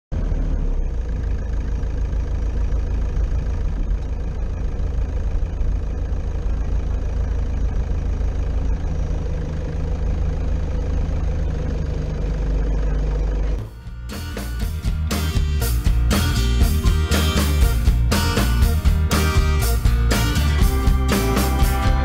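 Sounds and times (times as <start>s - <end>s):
car engine and road noise: 0.1s - 22.0s.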